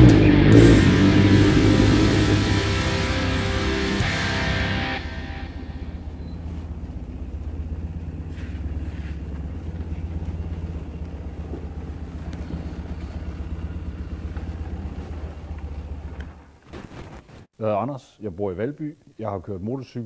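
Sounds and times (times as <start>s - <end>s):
motorcycle engine idling: 0.0s - 16.6s
faint clicks from motorcycle: 6.2s - 16.4s.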